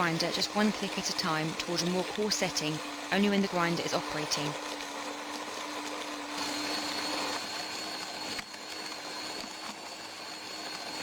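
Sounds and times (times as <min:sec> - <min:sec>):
coffee grinder whirring: 0:00.0 - 0:11.0.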